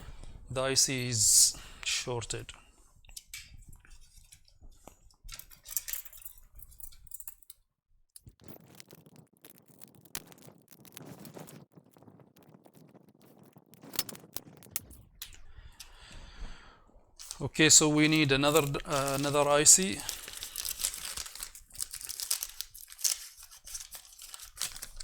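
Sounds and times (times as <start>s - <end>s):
small tools clicking and scraping: 3.1s - 7.6s, 8.2s - 11.7s, 13.4s - 16.0s, 17.2s - 17.5s, 18.1s - 25.0s.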